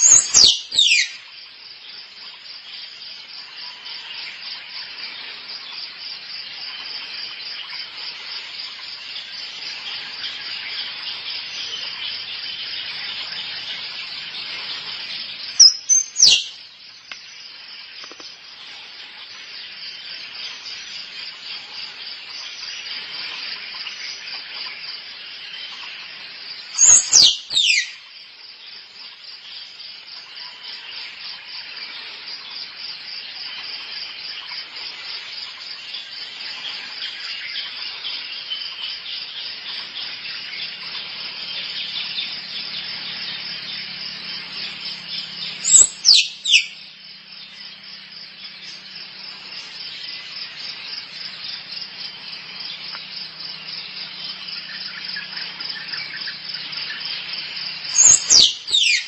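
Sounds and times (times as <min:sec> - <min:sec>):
squirrel squeaks: 0:15.6 - 0:16.4, 0:45.7 - 0:46.7, 0:58.0 - 0:59.0
squirrel chattering: 0:58.0 - 0:58.2.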